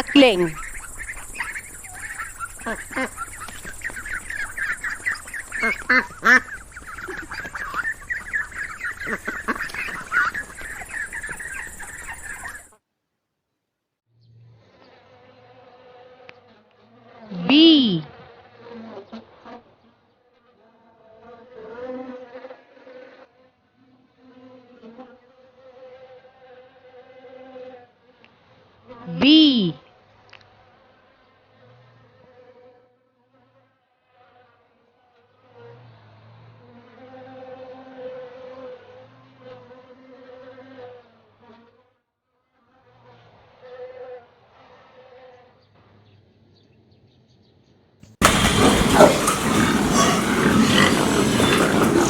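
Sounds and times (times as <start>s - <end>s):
bees buzzing: 0.0s - 12.7s, 48.2s - 52.0s.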